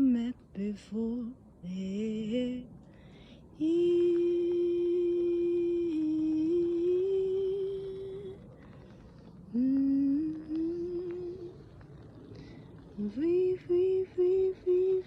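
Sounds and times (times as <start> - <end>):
woman humming: 3.6 - 8.4, 9.5 - 11.7.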